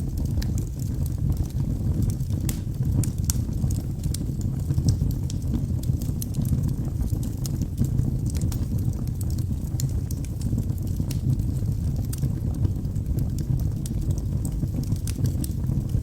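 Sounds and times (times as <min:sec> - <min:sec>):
fire flame rumble: 0:00.0 - 0:16.0
wood fire crackles and pops: 0:00.0 - 0:16.0.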